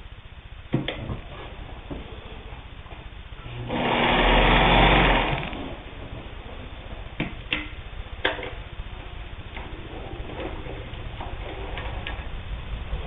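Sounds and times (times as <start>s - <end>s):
sewing machine stitching fast: 3.6s - 5.8s.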